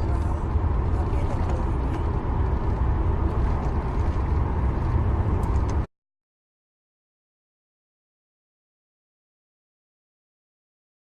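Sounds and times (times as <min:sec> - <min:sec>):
low rumbling noise: 0:00.0 - 0:05.9.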